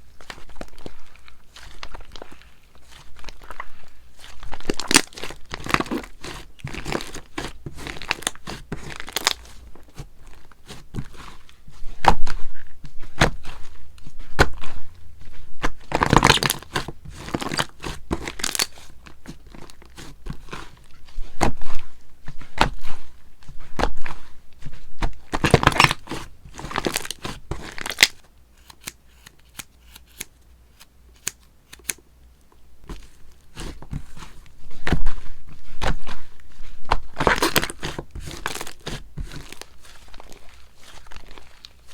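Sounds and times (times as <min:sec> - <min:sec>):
slime crackling and popping: 0:00.2 - 0:11.3, 0:15.6 - 0:18.8.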